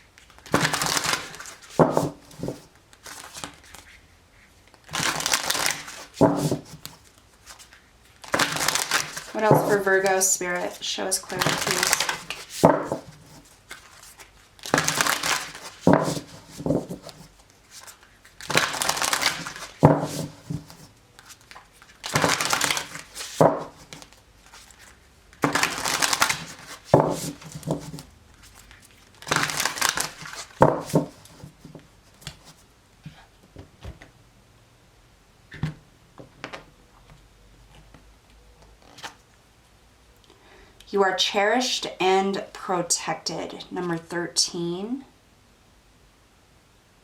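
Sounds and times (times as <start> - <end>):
cards shuffling: 0.1 - 4.0, 4.7 - 32.6.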